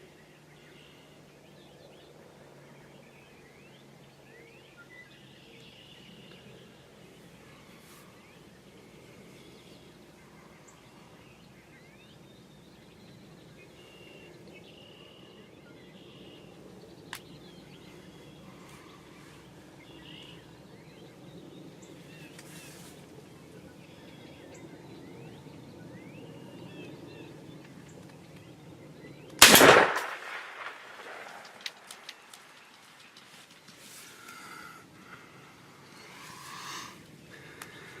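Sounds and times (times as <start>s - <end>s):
shotgun blast: 29.4s - 32.4s.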